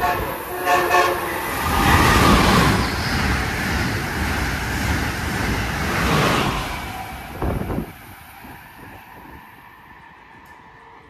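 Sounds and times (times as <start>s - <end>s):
train horn blast: 0.0s - 1.5s
train passing at speed: 0.0s - 11.0s.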